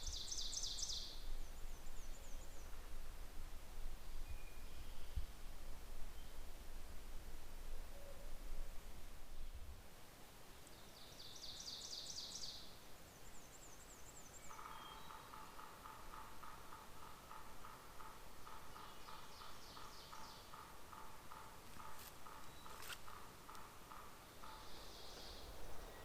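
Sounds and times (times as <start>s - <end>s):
rapid low repeated bird notes: 14.6s - 26.0s.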